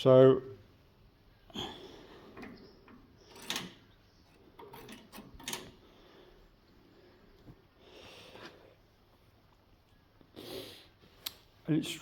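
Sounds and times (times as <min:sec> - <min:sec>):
handling knocks and clicks: 0:02.3 - 0:05.8.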